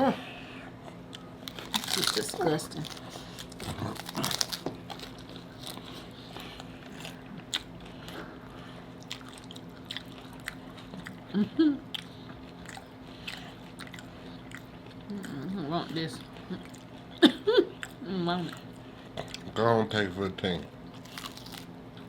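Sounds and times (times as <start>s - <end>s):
crunching and chewing taco shells: 0.9s - 22.0s
crisp shell cracks: 1.5s - 5.8s.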